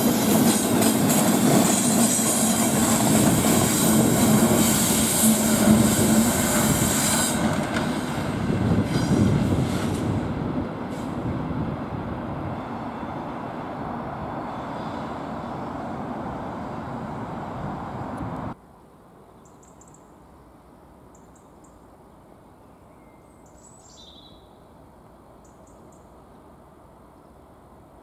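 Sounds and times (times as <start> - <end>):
locomotives rumbling along track: 0.0 - 18.6
bird chirps: 19.4 - 20.1, 22.7 - 24.6.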